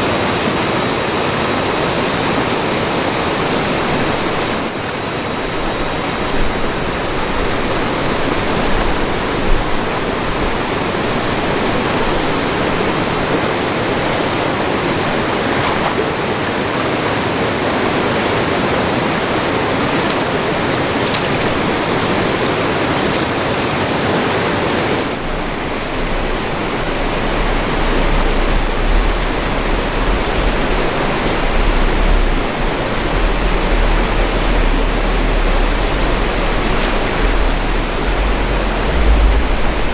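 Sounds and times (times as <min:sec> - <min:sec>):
rushing stream water: 0:00.0 - 0:39.9
low rumble: 0:25.1 - 0:39.9.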